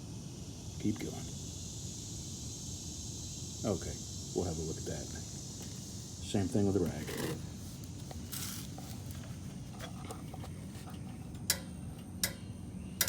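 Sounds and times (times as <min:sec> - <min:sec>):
steady low hum: 0:00.0 - 0:13.0
short rustle: 0:06.8 - 0:11.4.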